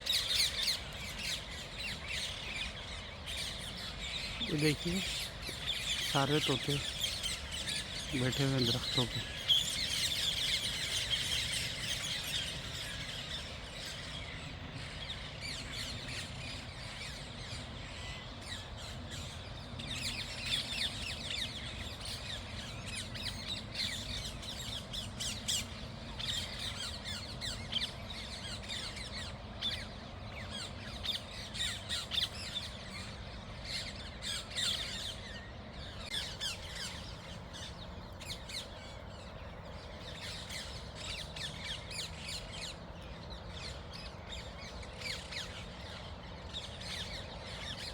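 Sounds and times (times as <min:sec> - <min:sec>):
parakeets squawking: 0:04.1 - 0:12.1.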